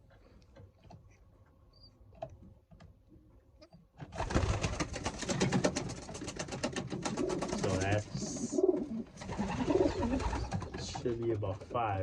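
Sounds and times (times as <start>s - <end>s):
wings fluttering: 4.0s - 11.4s.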